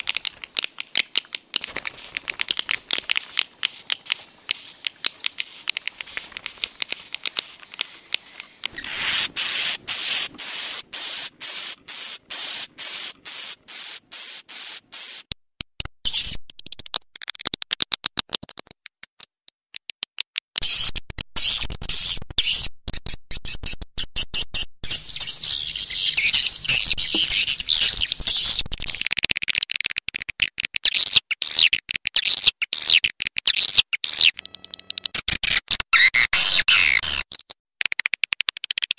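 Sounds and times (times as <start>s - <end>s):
swiftlet twittering: 0.0s - 15.3s, 24.8s - 28.1s.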